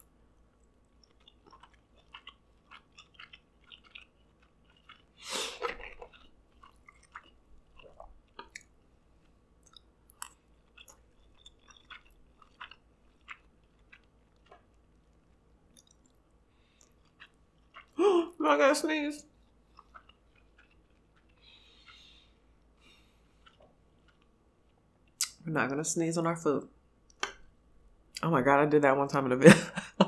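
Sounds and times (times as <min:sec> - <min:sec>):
person chewing: 0:00.0 - 0:18.0, 0:19.3 - 0:25.4.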